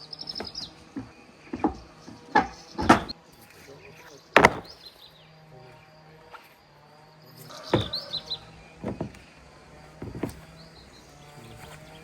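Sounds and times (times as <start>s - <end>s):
small birds chirping: 0.0s - 12.0s
sharp knocks: 0.4s - 3.2s, 4.4s - 4.8s, 7.7s - 8.1s.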